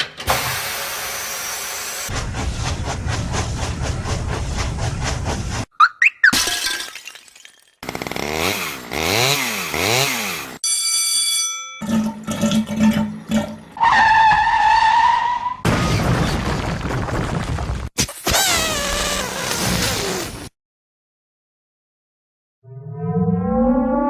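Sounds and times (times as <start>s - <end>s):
pitched tone dropping: 5.8s - 6.4s.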